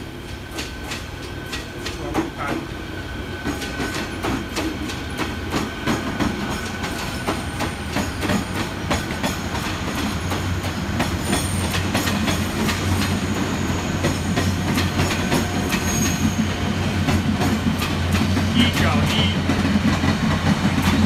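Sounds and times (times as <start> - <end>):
train wheels clicking over joints: 0.2 - 21.0
high wheel squeal: 15.1 - 16.6.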